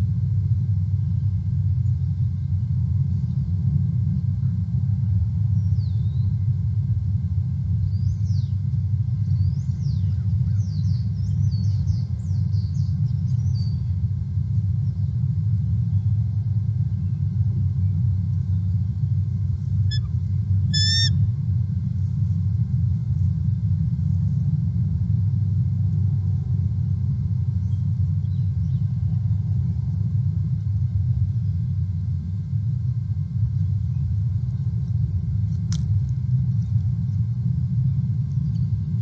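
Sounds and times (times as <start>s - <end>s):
steady low rumble: 0.0s - 39.0s
wild birds chirping: 9.2s - 13.9s, 20.7s - 21.2s
rapid pulsed bird call: 19.8s - 21.4s.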